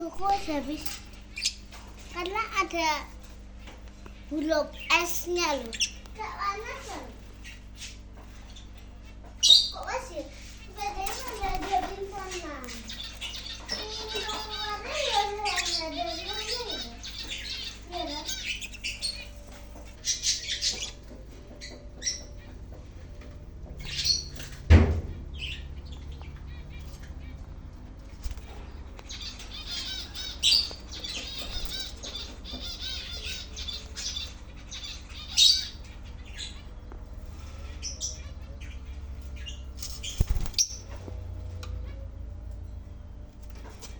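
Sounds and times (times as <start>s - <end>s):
pet birds chirping and squawking: 0.0s - 43.9s
wings flapping: 10.6s - 22.4s, 26.7s - 32.8s, 39.2s - 41.9s
loud thump: 24.7s - 25.2s.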